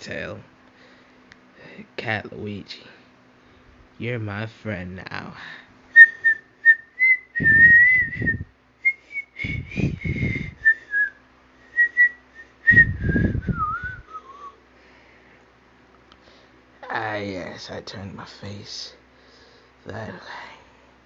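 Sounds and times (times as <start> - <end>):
person whistling a high tune: 6.0 - 14.6.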